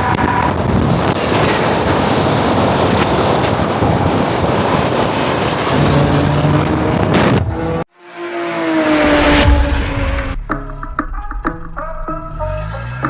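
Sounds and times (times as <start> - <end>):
wind rushing on microphone: 0.0 - 7.7
vehicle noise: 0.0 - 13.0
low hum: 8.0 - 13.0.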